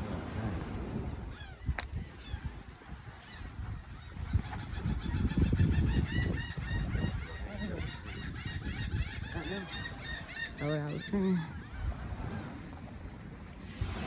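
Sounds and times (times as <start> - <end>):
birds calling in short high calls: 3.2 - 12.6.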